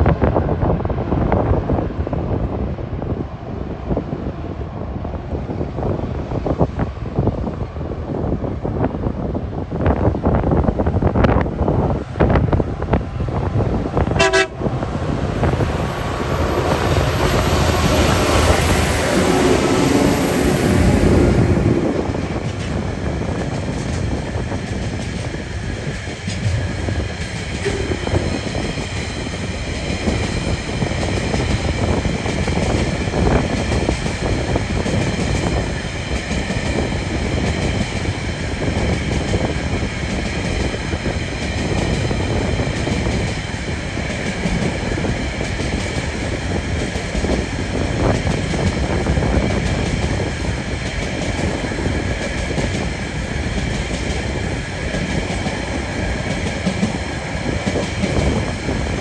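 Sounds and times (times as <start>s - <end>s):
diesel locomotives passing: 0.0s - 59.0s
train horn toot: 14.2s - 14.7s, 27.6s - 28.8s
wagons rumbling: 26.0s - 29.6s.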